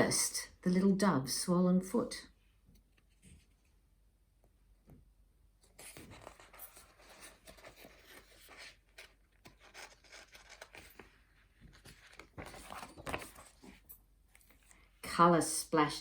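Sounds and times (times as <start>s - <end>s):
paper pages rustling: 5.6s - 14.8s.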